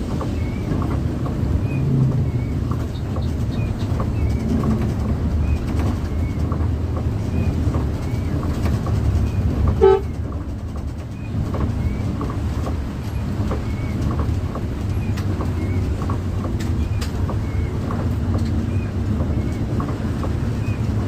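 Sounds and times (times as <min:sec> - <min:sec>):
bus engine and road rumble: 0:00.0 - 0:21.0
short horn toot: 0:09.8 - 0:10.2.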